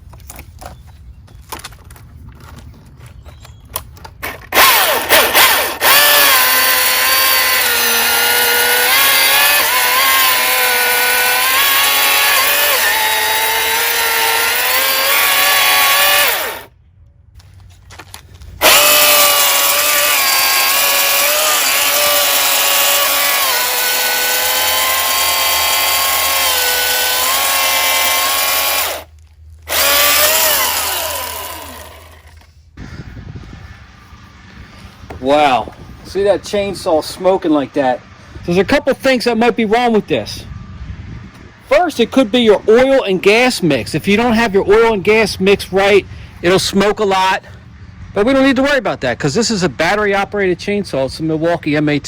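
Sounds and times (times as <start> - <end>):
electric chainsaw motor whining: 4.4 - 16.7, 18.6 - 32.5.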